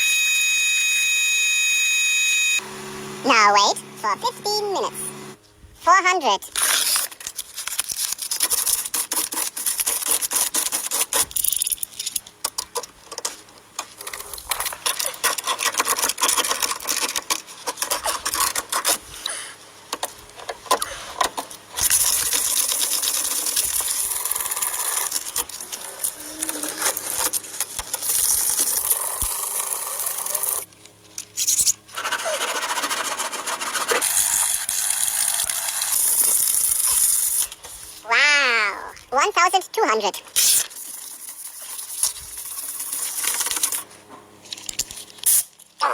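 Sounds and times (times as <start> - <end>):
sandpaper scraping car panel: 8.0 - 11.4, 31.4 - 34.5.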